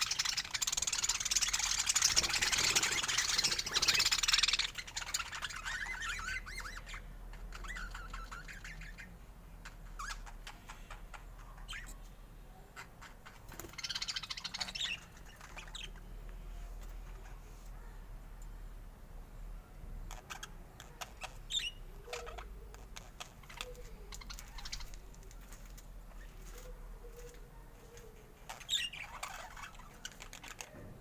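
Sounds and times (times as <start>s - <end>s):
harsh chatter bursts: 0.0s - 5.4s
budgerigars chattering and warbling: 0.0s - 12.0s, 12.8s - 16.0s, 20.1s - 30.8s.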